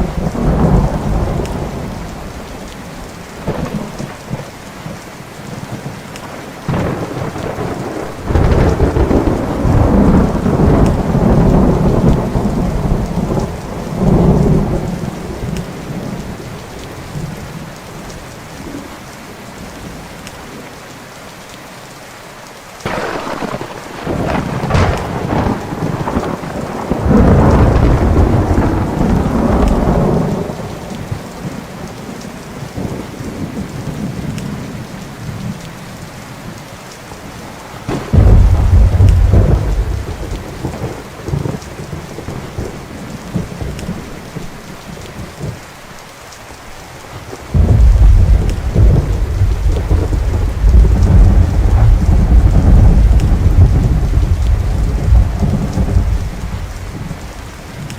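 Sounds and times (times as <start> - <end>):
thunder rolling: 0.0 - 2.7, 3.4 - 4.4, 6.7 - 16.5, 22.8 - 32.2, 37.9 - 44.6, 47.3 - 57.9
steady rain: 0.0 - 57.9.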